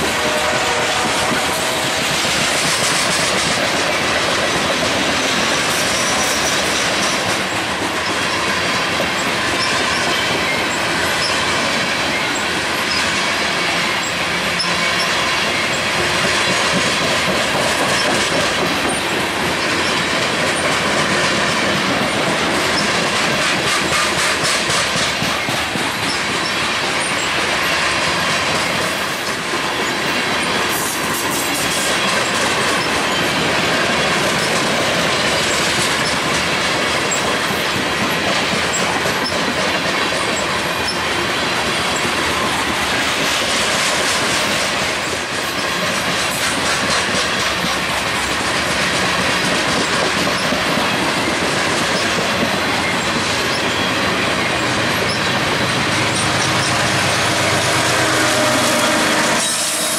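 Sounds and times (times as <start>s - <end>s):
freight train rumbling past: 0.0s - 59.9s
wheels clacking over rail joints: 0.0s - 59.9s
wheels squealing: 49.8s - 59.9s.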